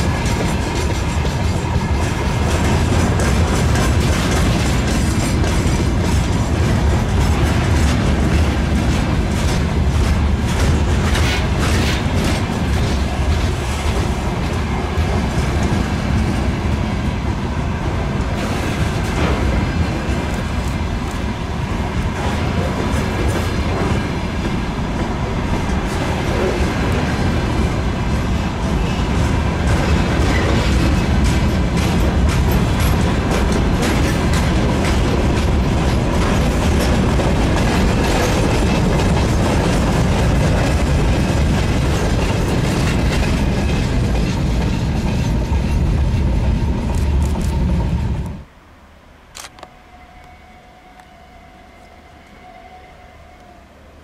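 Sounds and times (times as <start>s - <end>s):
wheels clicking over rail joints: 0.0s - 16.8s, 21.9s - 47.7s
train rumbling past: 0.0s - 54.0s.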